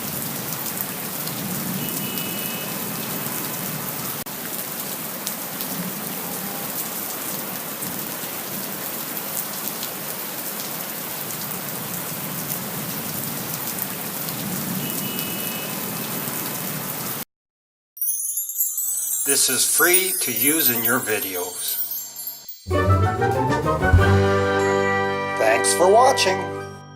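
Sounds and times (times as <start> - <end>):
heavy rain falling: 0.0 - 17.2.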